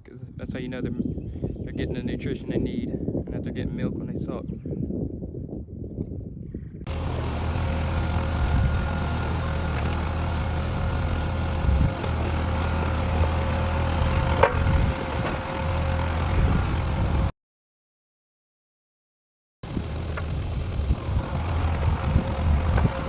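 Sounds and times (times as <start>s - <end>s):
tractor engine running: 6.9s - 17.3s, 19.6s - 23.0s.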